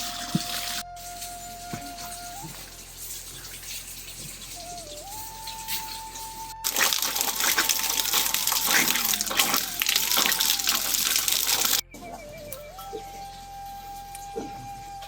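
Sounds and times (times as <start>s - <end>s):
water gushing: 0.0s - 11.8s.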